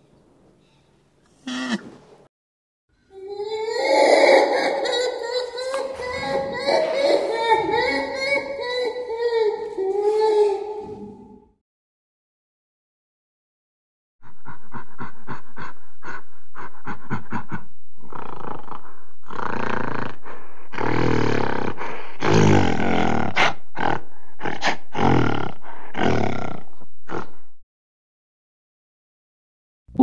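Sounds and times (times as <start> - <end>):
gorilla grunting: 1.4 - 2.0, 3.4 - 11.4, 16.8 - 27.4
gorilla roaring: 3.1 - 11.5, 18.0 - 27.4.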